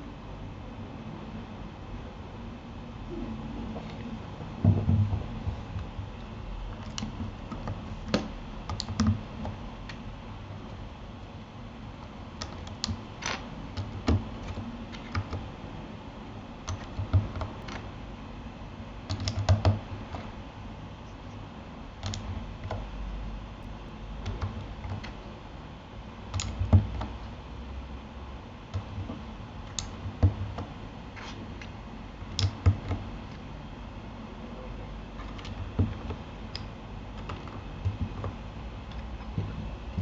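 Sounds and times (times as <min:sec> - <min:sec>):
mechanical keyboard typing: 0:06.8 - 0:09.6, 0:12.4 - 0:15.5, 0:16.6 - 0:17.9, 0:19.1 - 0:20.3, 0:22.0 - 0:22.9, 0:24.2 - 0:25.2, 0:26.3 - 0:27.2, 0:28.7 - 0:33.1.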